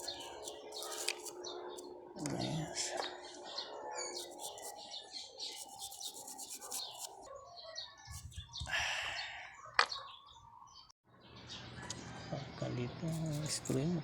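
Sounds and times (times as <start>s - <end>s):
high chirping: 0.0s - 10.9s.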